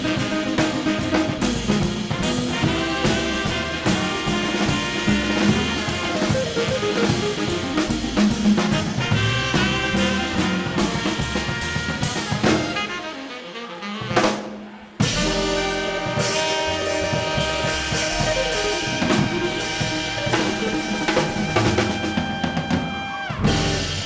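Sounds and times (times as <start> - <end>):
swing band playing: 0.0 - 24.0
drum hit: 14.2 - 24.0.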